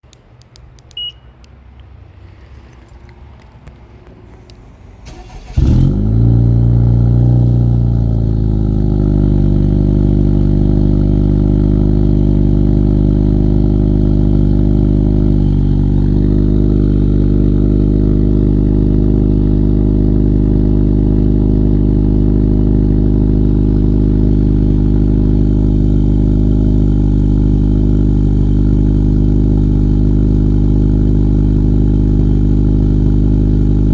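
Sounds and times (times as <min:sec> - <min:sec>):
car engine revving and idling: 0:01.7 - 0:33.9
engine cranking: 0:05.0 - 0:06.1.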